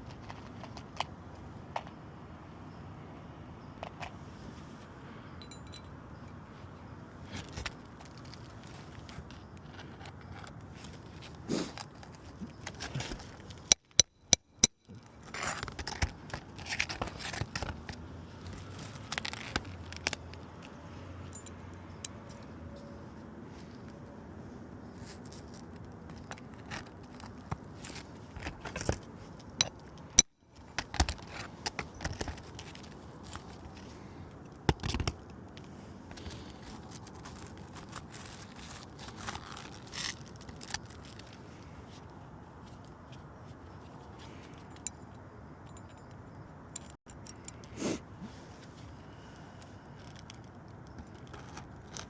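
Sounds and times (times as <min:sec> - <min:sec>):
tools clicking and scraping on shingle: 0:00.0 - 0:02.0, 0:07.3 - 0:22.5, 0:25.0 - 0:41.7.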